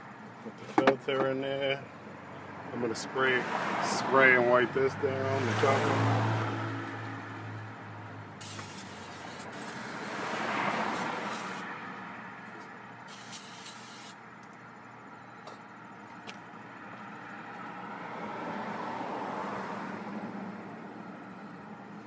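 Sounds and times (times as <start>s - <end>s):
passing road traffic: 0.0s - 22.0s
aerosol spray hissing: 8.4s - 11.7s, 13.1s - 14.2s.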